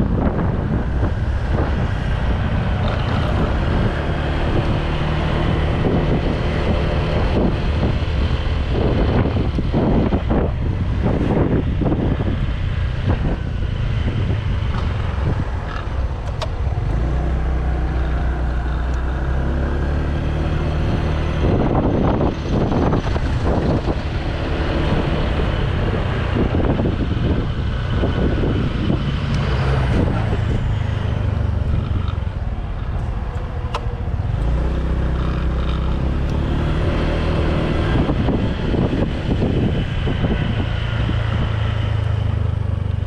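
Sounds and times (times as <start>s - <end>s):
scooter engine humming: 0.0s - 43.0s
wind buffeting microphone: 0.0s - 43.0s.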